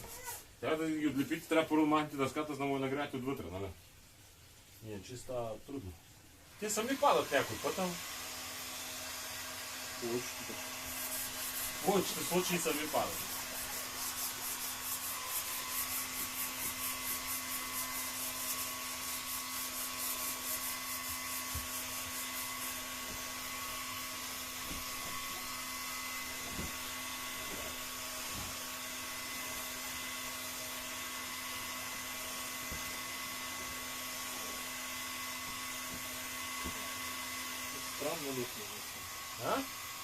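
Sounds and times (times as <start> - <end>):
heat gun fan whine: 6.6 - 40.0.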